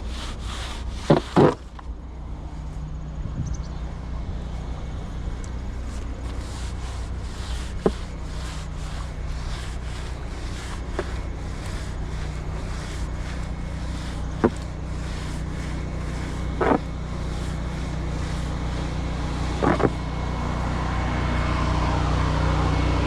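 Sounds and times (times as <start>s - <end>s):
pressure washer engine hum: 0.0s - 23.0s
water spray hissing: 5.3s - 20.7s.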